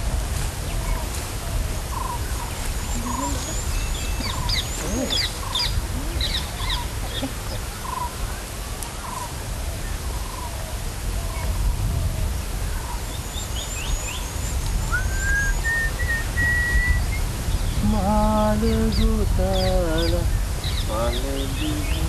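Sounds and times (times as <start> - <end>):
birds twittering and chirping: 0.0 - 22.0.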